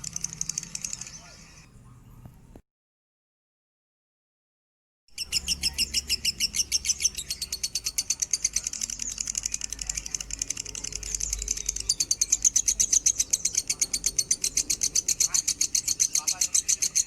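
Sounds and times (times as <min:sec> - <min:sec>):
bird chirping rapidly: 0:00.0 - 0:01.8, 0:05.1 - 0:17.0.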